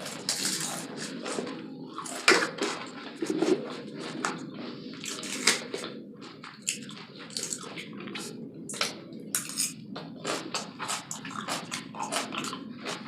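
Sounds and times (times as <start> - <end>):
wet chewing mouth sounds: 0.0 - 13.0
crunchy food clicks: 5.0 - 13.0.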